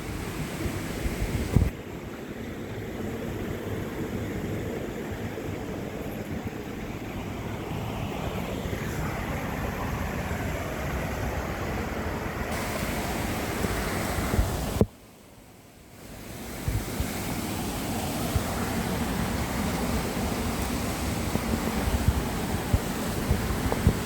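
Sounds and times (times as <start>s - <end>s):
wind buffeting microphone: 0.0s - 1.8s, 3.4s - 14.9s, 16.2s - 24.0s
waterfall and stream rushing: 0.0s - 24.0s.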